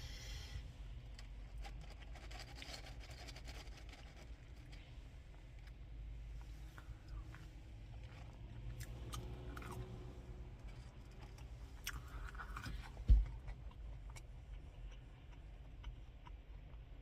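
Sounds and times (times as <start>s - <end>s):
person chewing food: 6.4s - 10.0s, 10.7s - 17.0s.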